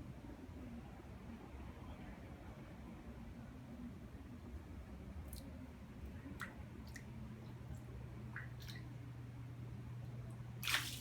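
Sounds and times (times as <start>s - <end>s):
water squishes and drips: 10.6s - 11.0s.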